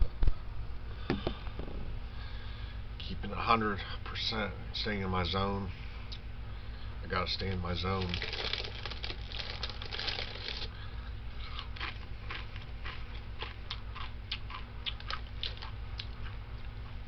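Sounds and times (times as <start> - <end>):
crunching chips while chewing: 7.9 - 10.8, 11.4 - 17.0.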